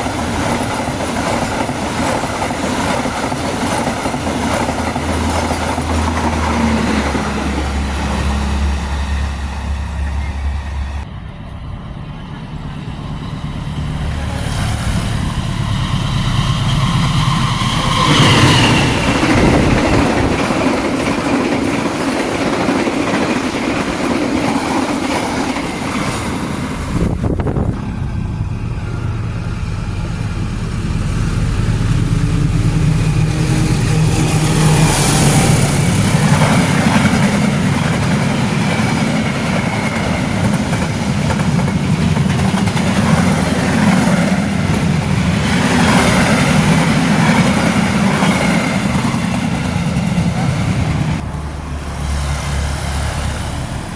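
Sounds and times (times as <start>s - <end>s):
diesel locomotive engine hum: 0.0s - 53.9s
train wheels rolling: 0.0s - 53.9s.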